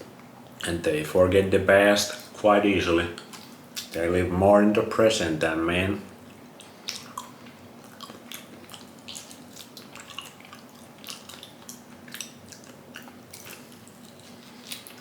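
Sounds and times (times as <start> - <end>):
faint steady hum: 0.0 - 15.0
wet chewing: 6.2 - 15.0.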